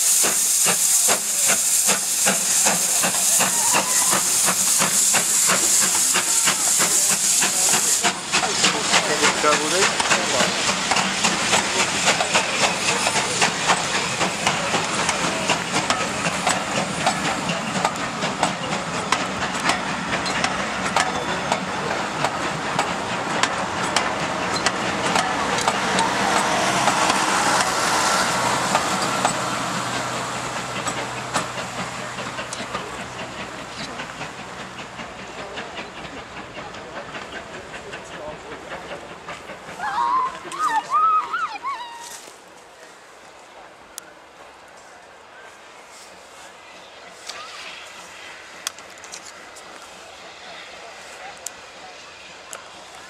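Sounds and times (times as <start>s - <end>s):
steam hissing: 0.0s - 41.2s, 43.2s - 53.0s
wheels clicking over rail joints: 0.2s - 27.9s.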